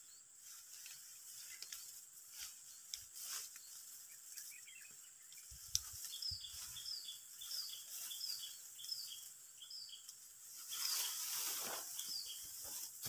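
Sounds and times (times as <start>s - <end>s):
bird chirping: 0.0s - 13.0s
faint steady hiss: 0.0s - 13.0s.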